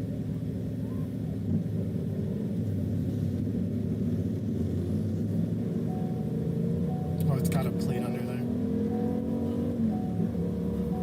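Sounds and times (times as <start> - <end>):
car engine drone: 0.0 - 11.0
road noise: 0.0 - 11.0.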